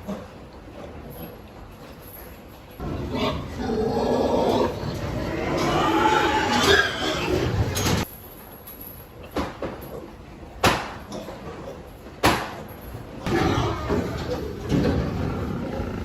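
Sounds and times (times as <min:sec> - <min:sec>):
pigs grunting and squealing: 0:00.0 - 0:01.6, 0:02.8 - 0:08.0, 0:13.2 - 0:16.0.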